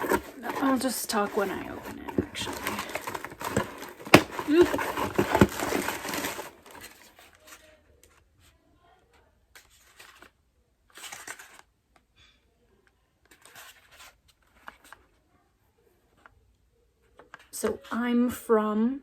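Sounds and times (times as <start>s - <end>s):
packaging tearing and crinkling: 0.0s - 7.2s
packaging rustling: 0.0s - 7.6s.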